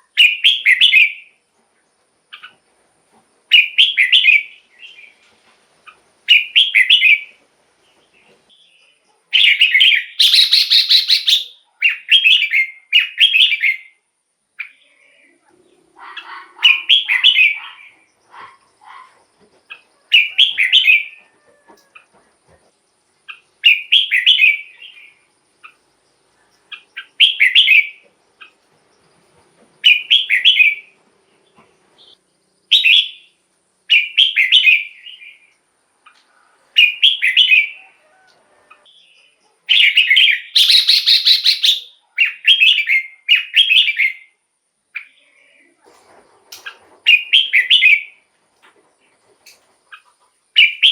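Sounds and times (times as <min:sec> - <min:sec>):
bulbul singing bright song phrases: 0:08.5 - 0:14.0, 0:14.6 - 0:21.2, 0:38.9 - 0:44.4.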